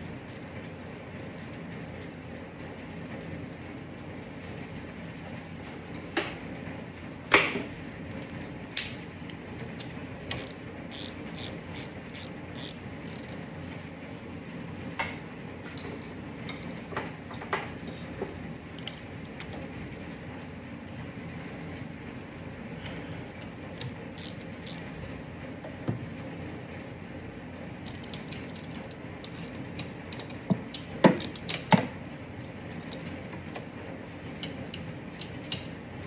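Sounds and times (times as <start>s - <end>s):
steady low hum: 0.0s - 36.0s
ratchet clicking: 9.8s - 13.4s, 24.2s - 24.8s, 27.9s - 31.7s.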